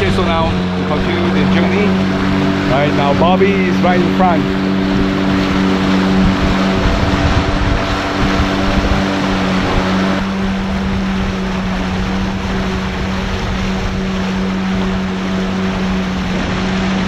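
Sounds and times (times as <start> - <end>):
outboard motor running: 0.0 - 17.0
rushing water and wind: 0.0 - 17.0.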